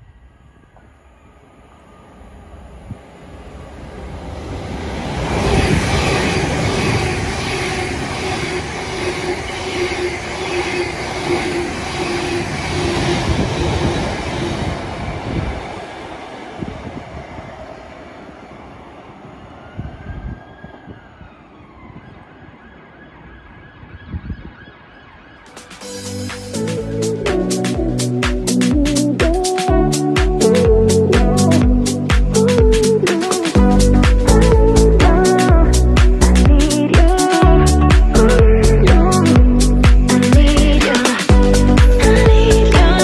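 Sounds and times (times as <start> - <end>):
faint rising and falling tone: 0.0 - 28.9
electric train traction whine: 0.0 - 43.0
rumble of wheels on rail: 0.0 - 43.0.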